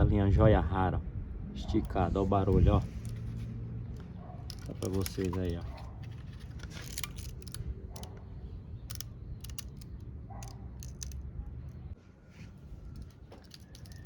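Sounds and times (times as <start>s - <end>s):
wind buffeting the microphone: 0.0s - 3.4s
sharp clicks: 4.0s - 12.0s, 12.9s - 14.0s.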